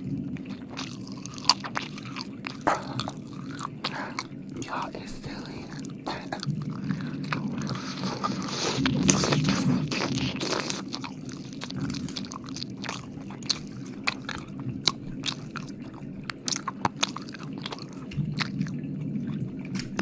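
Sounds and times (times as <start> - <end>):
wet licking and smacking: 0.4 - 20.0
sharp wet mouth clicks: 0.5 - 4.8, 16.3 - 18.6.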